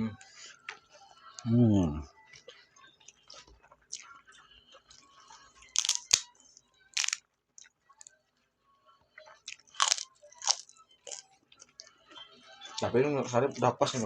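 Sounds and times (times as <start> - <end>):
crunchy chewing: 4.9 - 6.2, 6.9 - 8.1, 9.3 - 11.9.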